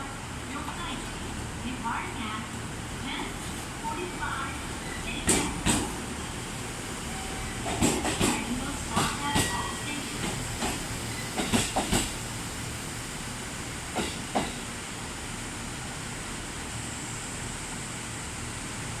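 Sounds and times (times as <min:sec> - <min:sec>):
train running hiss: 0:00.0 - 0:19.0
train wheels clacking over rail joints: 0:05.2 - 0:06.0, 0:07.6 - 0:09.6, 0:10.2 - 0:12.2, 0:13.9 - 0:14.7.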